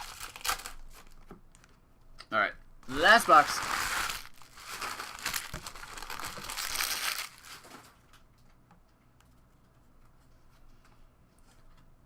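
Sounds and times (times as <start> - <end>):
plastic wrap crinkling and tearing: 0.0 - 1.3, 2.9 - 8.2.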